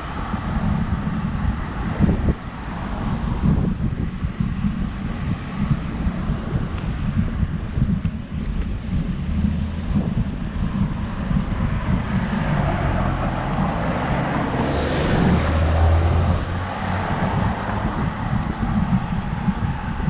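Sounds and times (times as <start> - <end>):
wind rumbling on microphone: 0.0 - 20.0
motor vehicle passing: 9.4 - 19.8.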